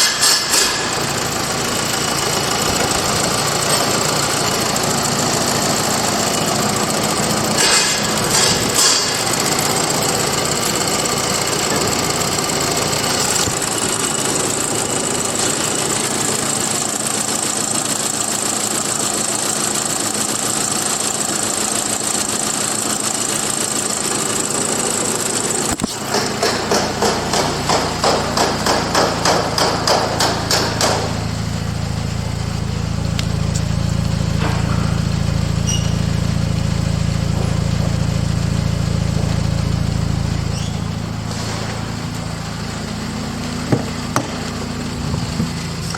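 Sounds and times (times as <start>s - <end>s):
car engine cranking and idling: 0.0s - 45.9s
click: 33.2s - 33.7s.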